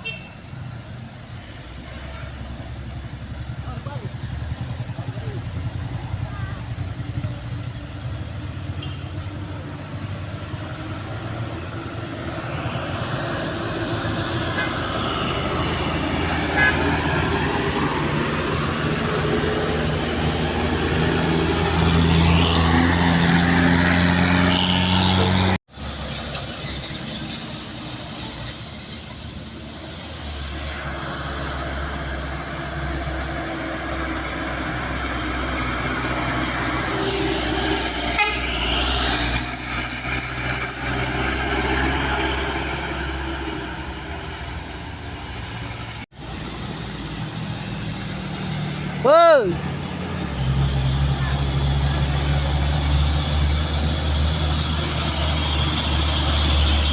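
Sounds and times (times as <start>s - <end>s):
road traffic noise: 0.0s - 56.9s.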